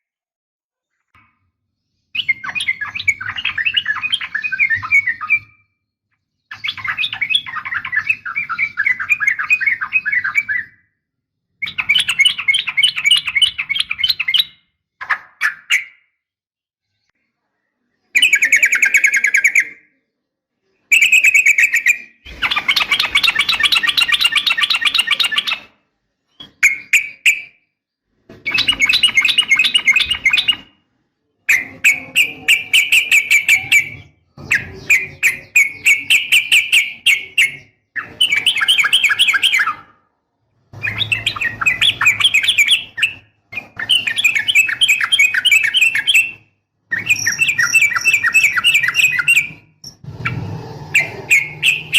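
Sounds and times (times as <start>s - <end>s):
bird singing chattering trills: 20.9s - 25.7s, 28.5s - 30.7s, 31.5s - 39.8s, 40.8s - 51.9s.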